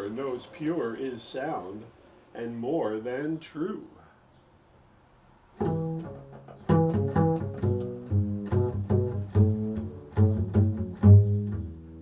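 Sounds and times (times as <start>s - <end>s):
low string instrument plucked: 5.6s - 12.0s.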